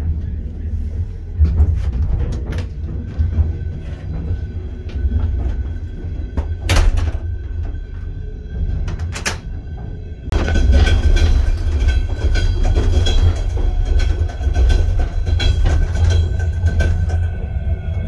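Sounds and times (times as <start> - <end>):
train rumbling with rattles and clicks: 0.0 - 18.0.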